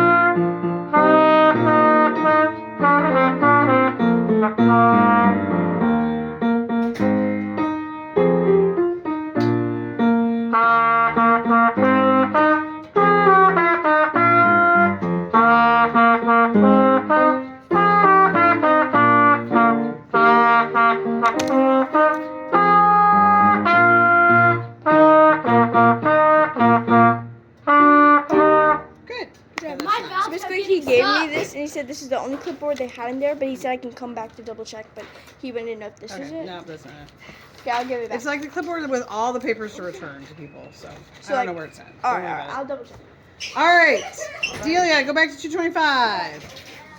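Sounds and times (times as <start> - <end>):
trumpet playing notes: 0.0 - 29.0
band instruments underneath: 0.0 - 33.4.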